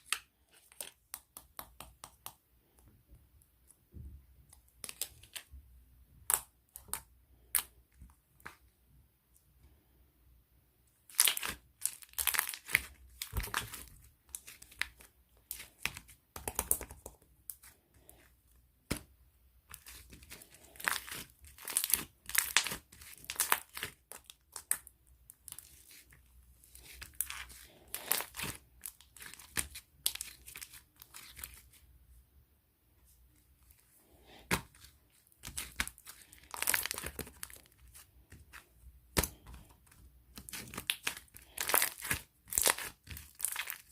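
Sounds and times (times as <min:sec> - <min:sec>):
crinkly material crumpled and torn: 0:34.7 - 0:38.7, 0:40.3 - 0:43.9.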